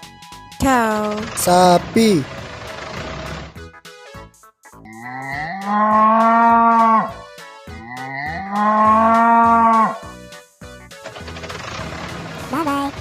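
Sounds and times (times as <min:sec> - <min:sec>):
light background music: 0:00.0 - 0:13.0
cow mooing: 0:05.0 - 0:07.2, 0:07.8 - 0:10.0.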